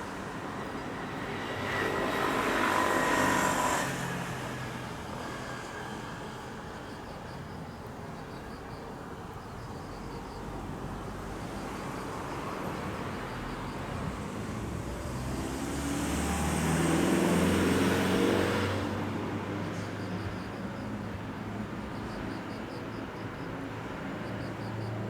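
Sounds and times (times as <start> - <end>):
passing vehicle engine: 0.0 - 6.6, 13.7 - 22.0.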